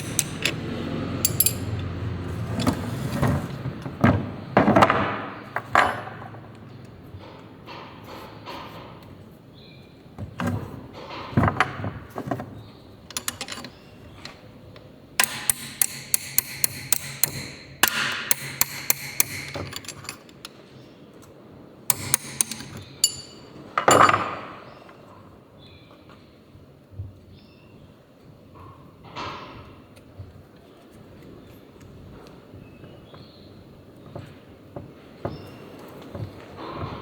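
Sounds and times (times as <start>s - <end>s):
tools tapping on metal engine parts: 0.0s - 2.8s, 13.1s - 14.4s, 15.2s - 20.6s, 21.9s - 24.8s.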